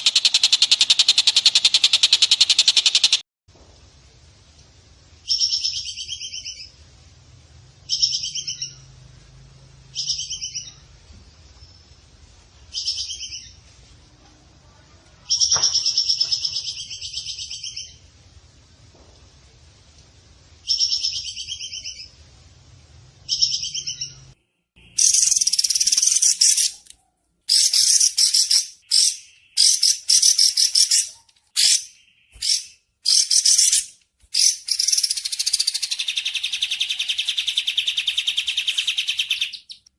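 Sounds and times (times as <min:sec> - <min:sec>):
fast high chirping bursts: 0:00.0 - 0:03.2, 0:24.9 - 0:26.8, 0:27.5 - 0:39.8.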